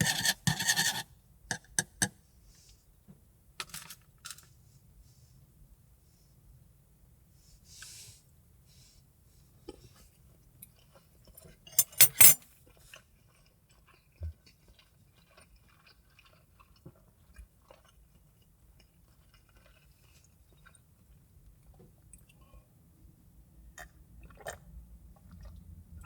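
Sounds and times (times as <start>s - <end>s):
faint chewing: 12.5s - 22.5s.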